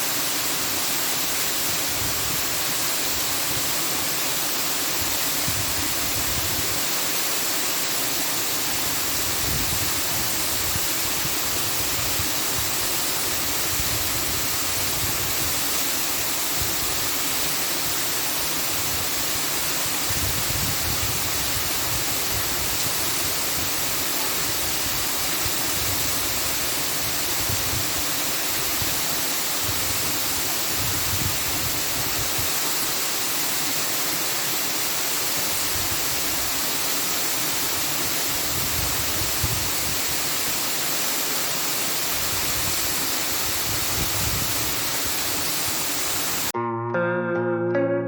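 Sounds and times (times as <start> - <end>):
guitar music: 46.6 - 48.0.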